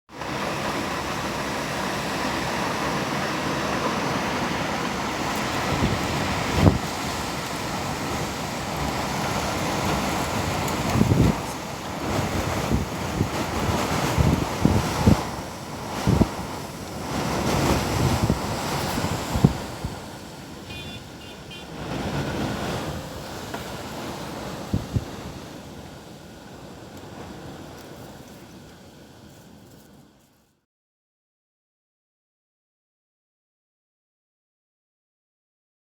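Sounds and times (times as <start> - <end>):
wind gusts thumping microphone: 0.2 - 29.3
strong wind blowing: 0.6 - 29.3.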